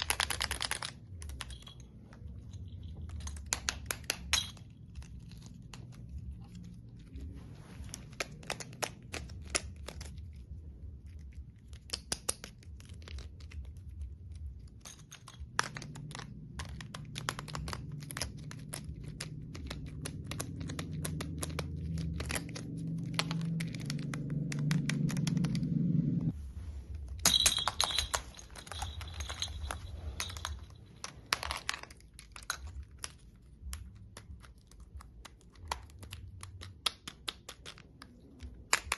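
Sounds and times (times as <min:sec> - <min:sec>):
toys clicking and tapping: 0:00.0 - 0:06.9, 0:11.2 - 0:25.7, 0:27.8 - 0:38.9
low hum: 0:12.8 - 0:35.1.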